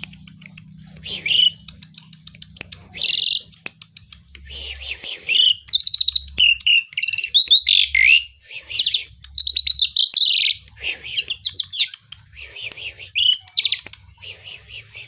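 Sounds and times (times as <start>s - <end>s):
starling singing: 1.1s - 1.6s, 2.9s - 3.6s, 4.5s - 12.1s, 12.9s - 13.9s.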